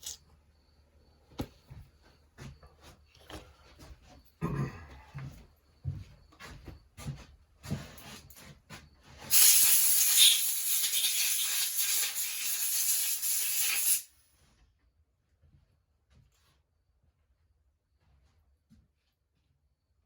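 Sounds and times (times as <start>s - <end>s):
pressurised gas hissing: 9.3s - 14.1s.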